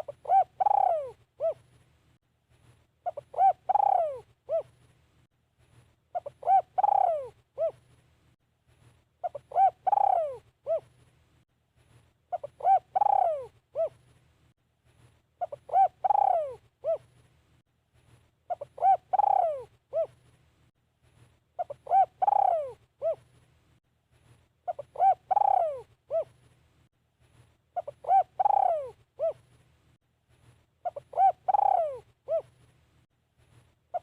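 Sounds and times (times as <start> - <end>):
dove cooing: 0.0 - 1.7, 3.0 - 4.8, 6.1 - 7.8, 9.2 - 11.0, 12.3 - 14.0, 15.4 - 17.1, 18.5 - 20.2, 21.6 - 23.3, 24.7 - 26.4, 27.8 - 29.5, 30.8 - 32.6.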